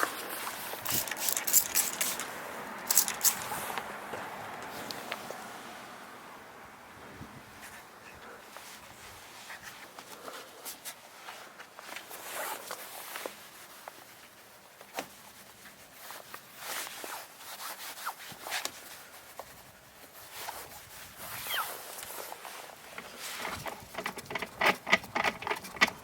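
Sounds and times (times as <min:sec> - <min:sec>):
brush scraping surfaces: 0:00.0 - 0:03.8, 0:20.2 - 0:26.0.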